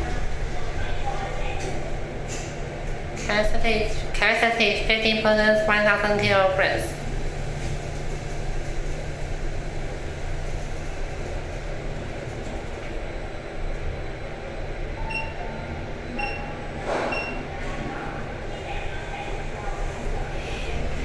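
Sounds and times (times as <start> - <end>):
elevator car rumbling: 0.0 - 21.0
short electronic beeps: 15.0 - 16.5, 17.1 - 17.4.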